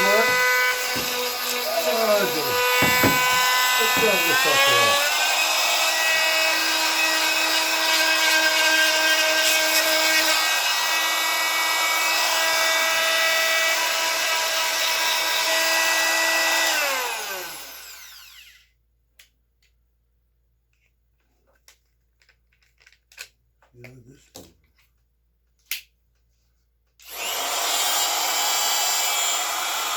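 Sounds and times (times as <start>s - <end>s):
power tool motor whining: 0.0s - 18.6s, 27.0s - 29.9s.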